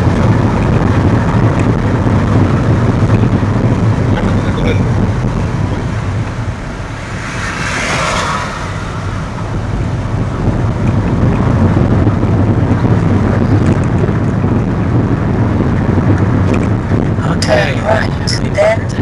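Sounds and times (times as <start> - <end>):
engine and tyres rumbling: 0.0 - 19.0.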